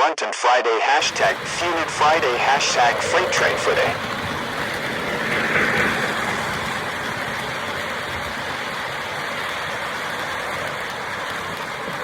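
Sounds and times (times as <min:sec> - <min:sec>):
model train rolling on track: 0:01.0 - 0:12.0.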